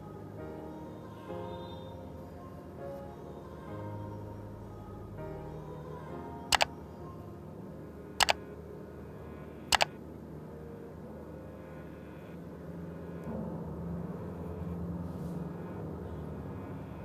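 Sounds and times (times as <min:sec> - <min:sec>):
sharp double clicks: 0:08.2 - 0:08.4, 0:09.7 - 0:09.9.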